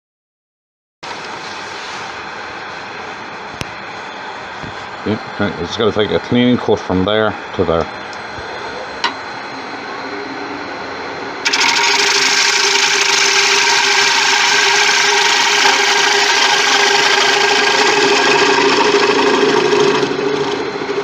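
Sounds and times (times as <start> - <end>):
turning tool cutting hiss: 11.4 - 21.0
wood lathe motor hum: 11.4 - 21.0.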